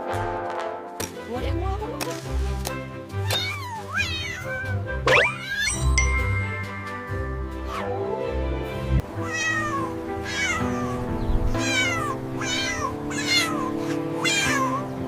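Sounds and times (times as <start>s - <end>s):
background music held notes: 0.0s - 15.0s
small animal crying: 3.2s - 5.8s, 9.2s - 15.0s.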